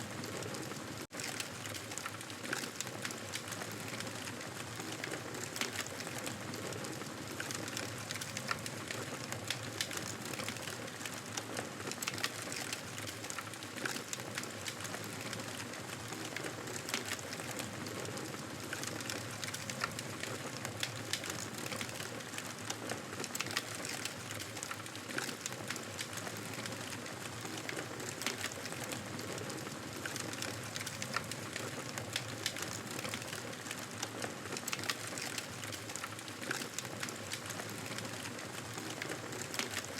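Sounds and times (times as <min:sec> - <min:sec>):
campfire crackling and popping: 0:00.1 - 0:39.9.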